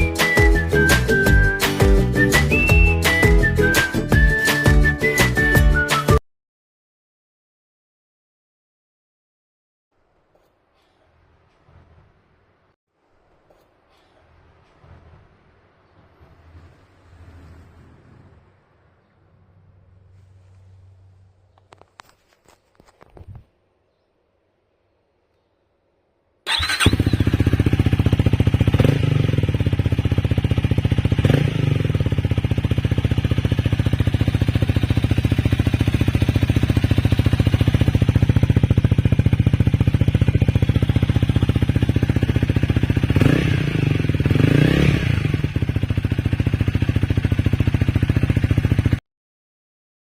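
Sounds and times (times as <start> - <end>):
motorcycle engine idling: 26.5 - 49.0
motorcycle engine revving: 26.5 - 49.0.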